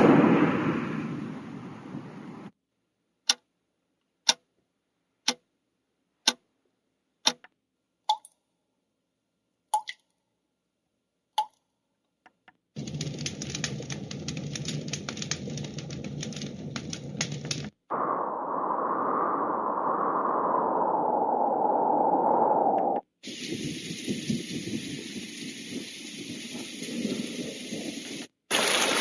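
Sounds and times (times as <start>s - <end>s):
dense crackling noise: 0.0s - 2.5s, 12.8s - 29.0s.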